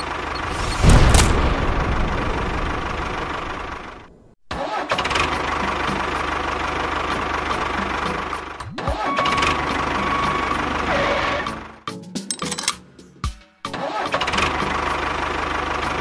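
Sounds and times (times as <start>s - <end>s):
engine running: 0.0s - 4.3s, 5.0s - 11.7s.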